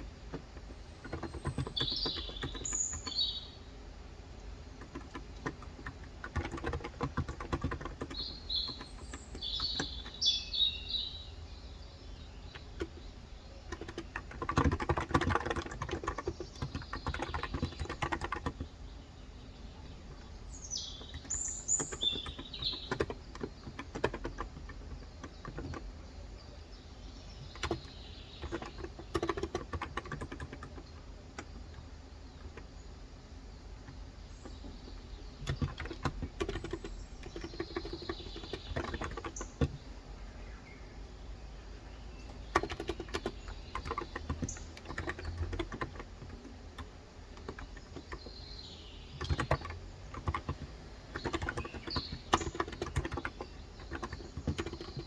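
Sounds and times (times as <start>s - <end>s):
bird chirping: 0.0s - 55.0s
soft keyboard keystrokes: 0.3s - 3.3s, 4.8s - 10.2s, 12.4s - 18.7s, 21.0s - 26.0s, 27.4s - 32.8s, 33.8s - 39.8s, 42.2s - 48.4s, 49.1s - 55.0s.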